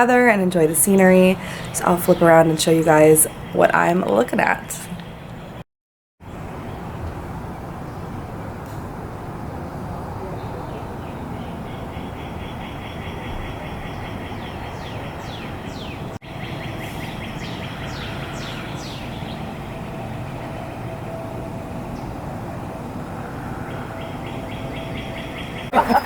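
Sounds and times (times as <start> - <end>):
low outdoor rumble: 0.0 - 5.6, 14.7 - 26.0
songbird trill: 0.3 - 5.6, 10.2 - 26.0.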